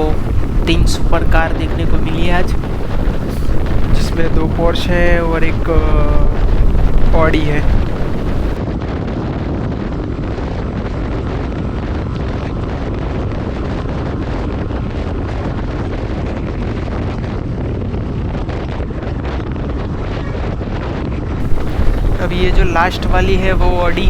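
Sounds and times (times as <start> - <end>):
motorcycle road and engine noise: 0.0 - 8.6, 21.4 - 24.0
wind buffeting microphone: 0.0 - 20.0, 21.4 - 24.0.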